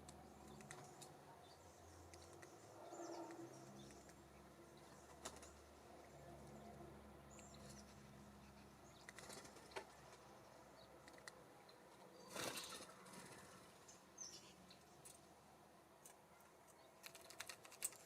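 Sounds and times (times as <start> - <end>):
songbirds chirping: 0.0 - 18.0
wings fluttering: 4.8 - 5.7, 9.0 - 10.3, 12.2 - 13.9, 17.0 - 18.0.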